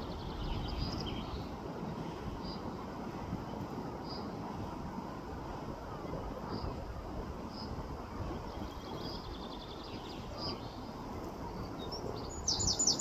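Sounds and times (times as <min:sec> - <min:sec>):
low wind rumble: 0:00.0 - 0:13.0
small birds chirping: 0:11.8 - 0:13.0.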